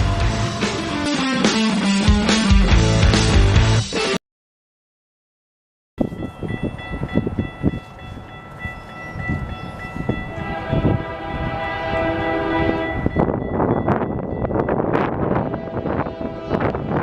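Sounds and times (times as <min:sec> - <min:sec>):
train rumbling and clattering: 0:06.0 - 0:17.0
train horn: 0:10.2 - 0:13.4, 0:14.9 - 0:17.0.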